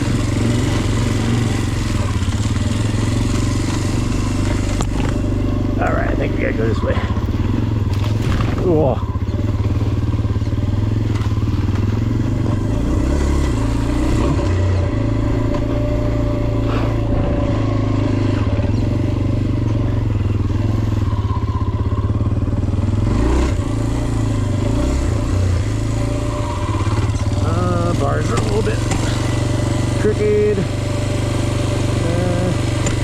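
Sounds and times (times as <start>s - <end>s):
dirt bike engine running: 0.0s - 33.0s.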